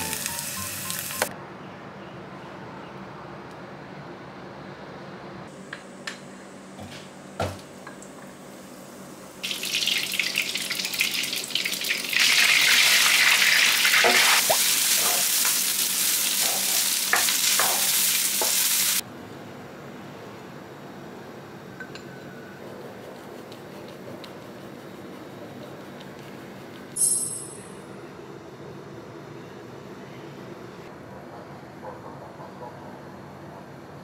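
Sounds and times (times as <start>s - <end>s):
butter sizzling in a wok: 0.0s - 1.3s, 9.4s - 19.0s.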